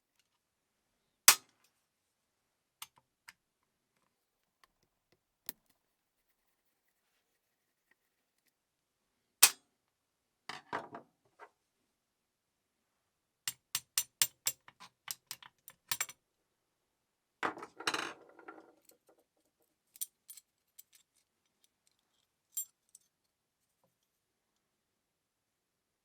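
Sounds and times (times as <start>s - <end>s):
small metal parts clinking: 14.2s - 16.1s.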